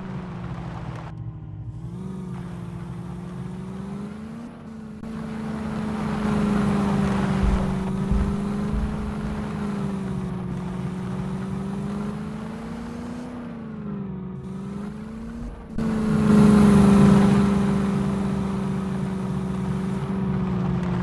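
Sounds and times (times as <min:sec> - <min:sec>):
car engine running: 0:00.0 - 0:21.0
low thumps: 0:05.0 - 0:11.4, 0:14.5 - 0:21.0.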